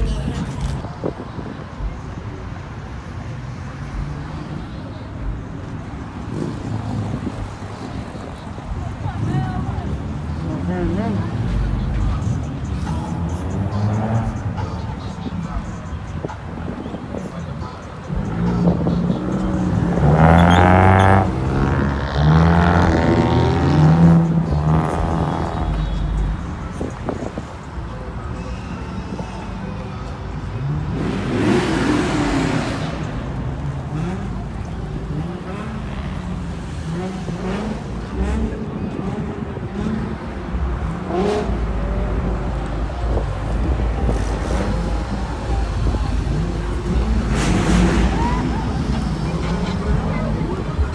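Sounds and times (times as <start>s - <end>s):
car engine revving: 3.0s - 27.9s, 30.5s - 50.9s.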